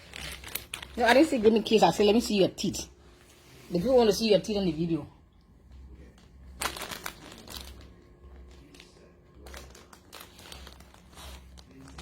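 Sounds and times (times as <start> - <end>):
dog crunching chips: 0.0 - 1.7, 6.4 - 12.0.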